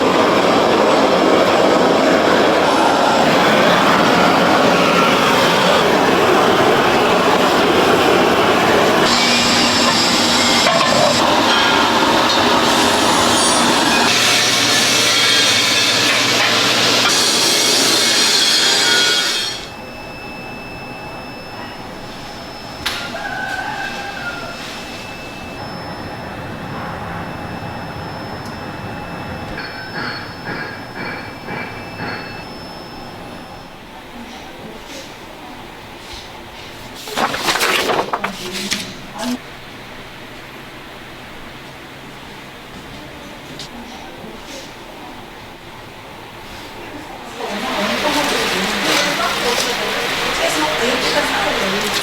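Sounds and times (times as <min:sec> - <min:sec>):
factory machinery noise: 0:00.0 - 0:52.0
squeaks: 0:08.8 - 0:32.5
thin high squealing tones: 0:17.4 - 0:35.0.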